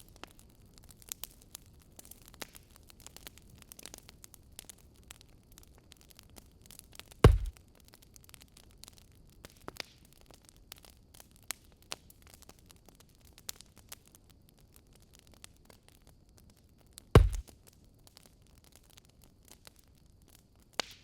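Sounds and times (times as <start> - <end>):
wood fire crackling: 0.0 - 21.0
loud sharp knock: 7.3 - 7.5, 17.2 - 17.4.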